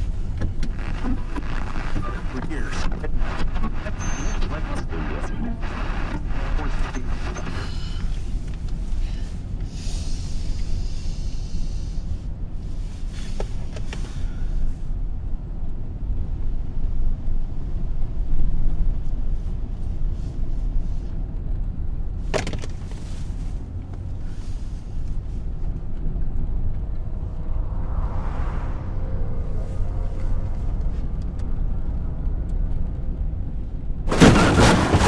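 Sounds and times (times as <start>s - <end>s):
car driving rumble: 22.2s - 35.0s.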